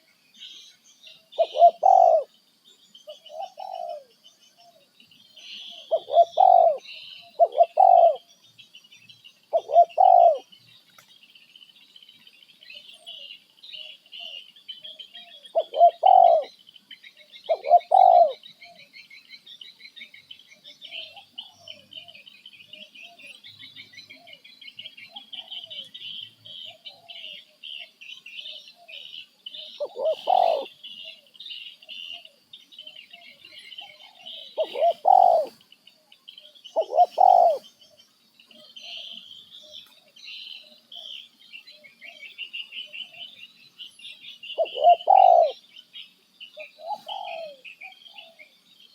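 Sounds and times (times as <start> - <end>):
loud short low bird calls: 28.8 - 31.2, 36.8 - 37.7, 44.5 - 45.6, 46.6 - 48.5.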